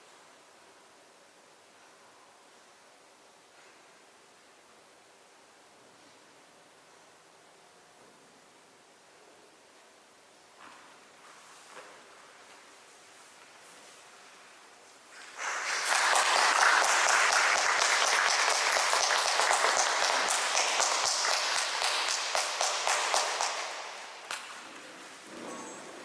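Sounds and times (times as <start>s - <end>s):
audience applauding: 15.4s - 24.5s.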